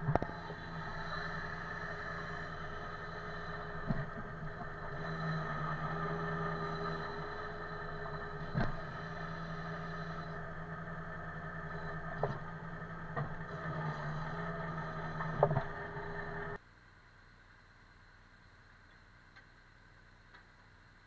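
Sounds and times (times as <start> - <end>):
engine running steadily: 0.0 - 16.6.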